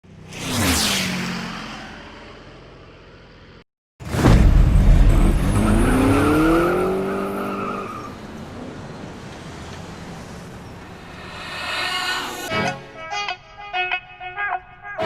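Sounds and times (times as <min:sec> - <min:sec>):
car engine starting and revving: 0:05.0 - 0:07.7
vehicle passing: 0:08.5 - 0:12.5.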